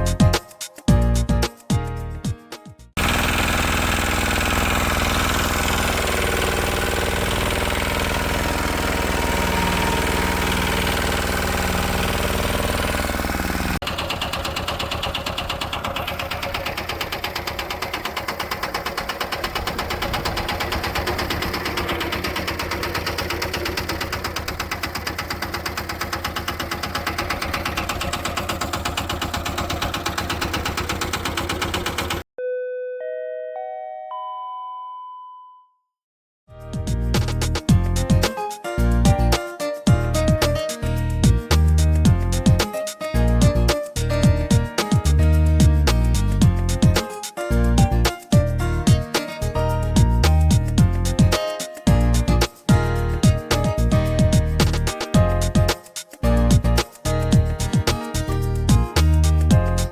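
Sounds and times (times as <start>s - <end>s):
diesel engine knocking: 3.0s - 32.3s.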